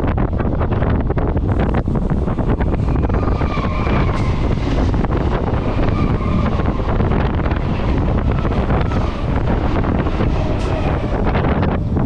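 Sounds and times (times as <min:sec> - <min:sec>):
train wheels rumbling on track: 0:00.0 - 0:12.0
wind buffeting microphone: 0:00.0 - 0:12.0.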